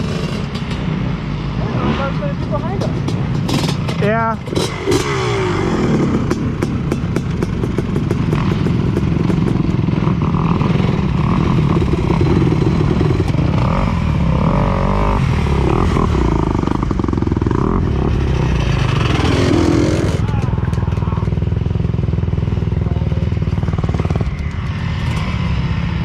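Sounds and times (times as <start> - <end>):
dirt bike engine running: 0.0 - 26.0.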